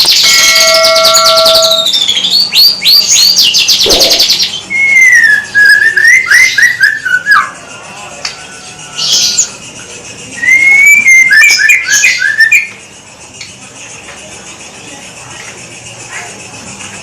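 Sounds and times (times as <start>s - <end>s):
harsh bird call: 0.0s - 9.8s
bird singing whistled notes: 0.0s - 13.5s.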